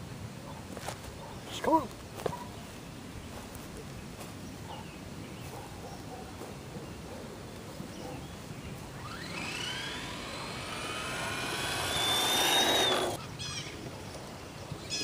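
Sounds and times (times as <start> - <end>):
electric motor whining: 8.9 - 13.2.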